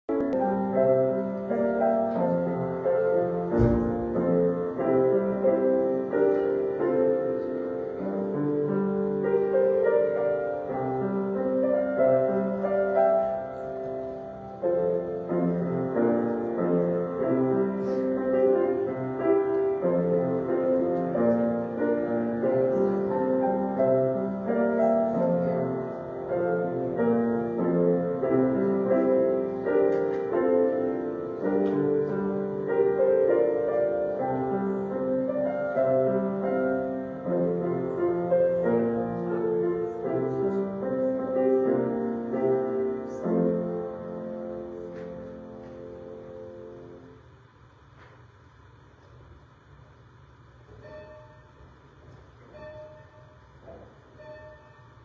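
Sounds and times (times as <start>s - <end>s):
instrumental piano music: 0.1s - 47.3s
low thump: 3.5s - 4.4s.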